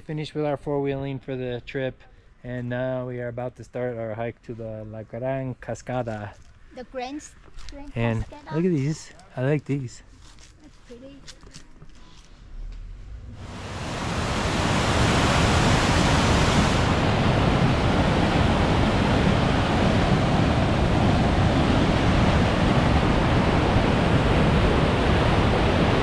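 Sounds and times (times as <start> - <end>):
small waterfall rushing: 13.4 - 26.0.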